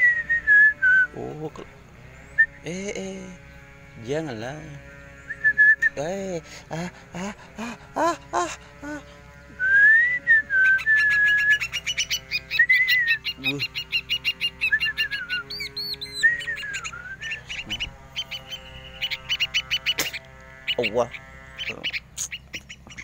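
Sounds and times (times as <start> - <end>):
songbird chirping and whistling: 0.0 - 1.2, 9.6 - 20.0.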